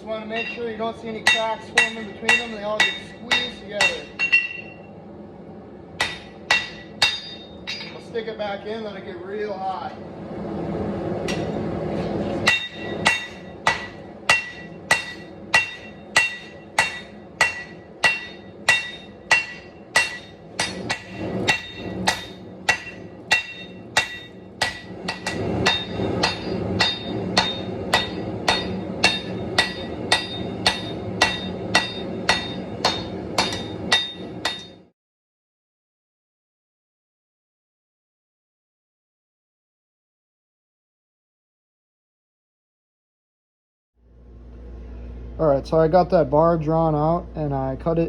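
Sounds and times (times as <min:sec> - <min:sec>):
hammer striking metal on anvil: 0:00.2 - 0:04.8, 0:06.0 - 0:08.1, 0:11.2 - 0:11.6, 0:12.4 - 0:34.9
steady rushing noise: 0:08.9 - 0:34.7.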